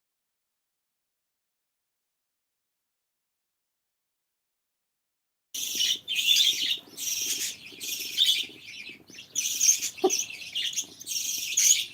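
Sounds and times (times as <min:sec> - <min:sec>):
pet birds chirping: 0:05.6 - 0:11.9.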